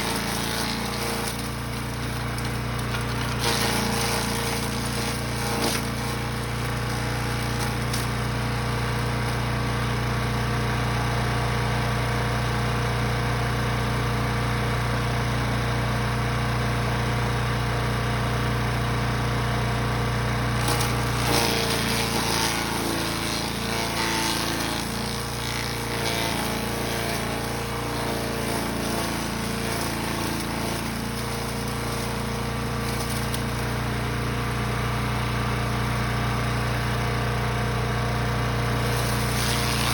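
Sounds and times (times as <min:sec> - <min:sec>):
crunching and grinding: 0:00.0 - 0:10.0, 0:20.6 - 0:35.1, 0:38.6 - 0:39.9
wood chipper engine running: 0:00.0 - 0:39.9.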